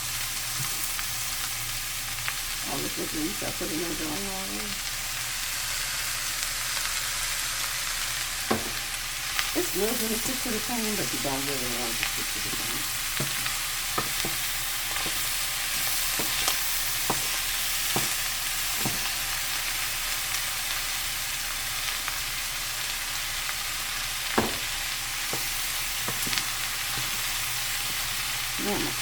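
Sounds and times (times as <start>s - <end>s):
corn sizzling in a frying pan: 0.0s - 29.0s
utensil scraping a pan: 12.2s - 19.2s, 24.6s - 28.4s.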